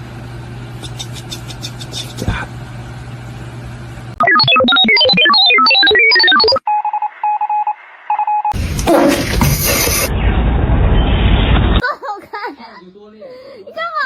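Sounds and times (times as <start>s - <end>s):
steady electronic beep: 4.2s - 8.6s
rapid electronic beeping notes: 4.2s - 10.2s.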